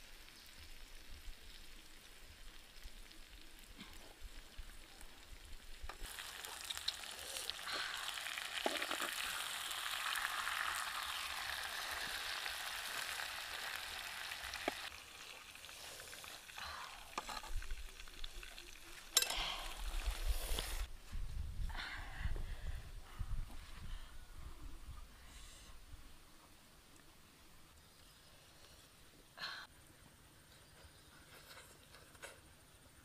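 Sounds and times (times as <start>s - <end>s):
food sizzling in a pan: 4.9s - 20.9s.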